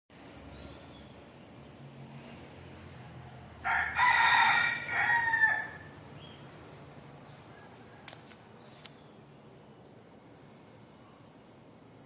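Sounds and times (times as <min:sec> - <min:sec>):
rooster crowing: 0:03.2 - 0:06.0, 0:07.4 - 0:08.3.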